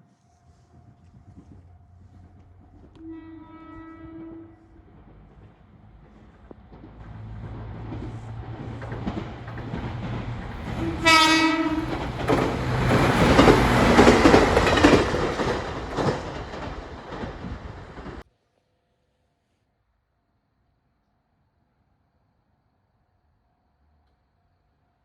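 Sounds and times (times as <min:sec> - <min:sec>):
train horn: 0:02.8 - 0:05.0, 0:10.6 - 0:14.5
train wheels clattering over rails: 0:04.3 - 0:18.2.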